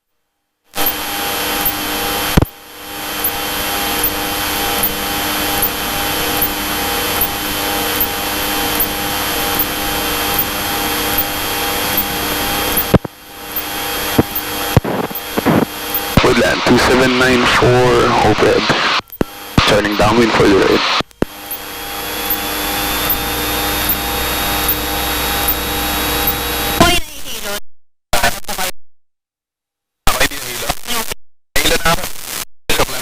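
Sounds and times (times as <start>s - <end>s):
aircraft engine droning in cabin: 1.8s - 14.7s.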